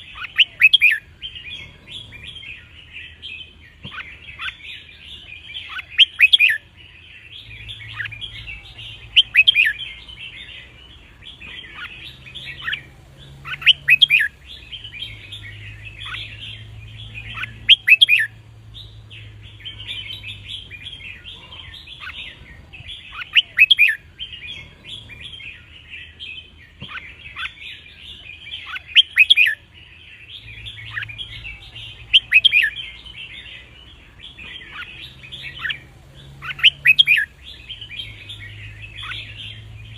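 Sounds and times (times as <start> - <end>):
birds chirping chatter: 0.0 - 39.9
clear bird song phrase: 0.0 - 39.9.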